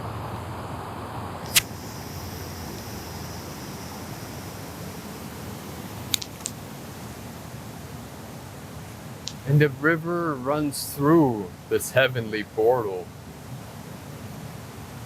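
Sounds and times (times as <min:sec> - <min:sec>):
sharp clicks: 0:01.4 - 0:01.9, 0:06.1 - 0:06.6, 0:09.2 - 0:09.5
river and waterfall rushing: 0:01.4 - 0:15.0.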